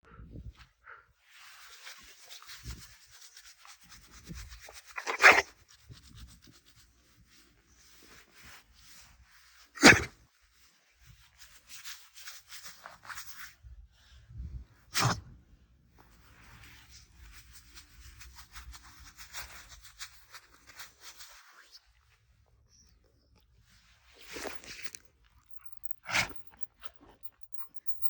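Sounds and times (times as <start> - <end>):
dog sneezing: 5.0 - 5.4, 9.8 - 10.1, 26.0 - 26.3.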